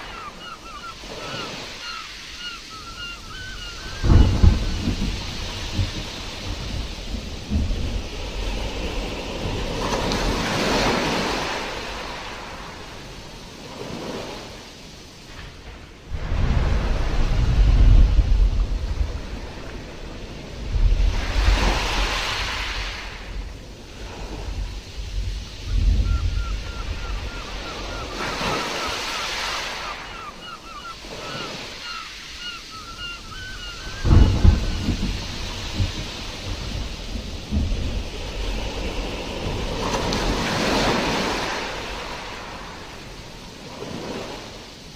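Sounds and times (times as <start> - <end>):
rain: 0.0 - 44.9
surf washing in: 0.0 - 44.9
low rumbling thunder: 3.8 - 11.2, 15.4 - 22.5, 24.3 - 27.4, 33.8 - 41.0.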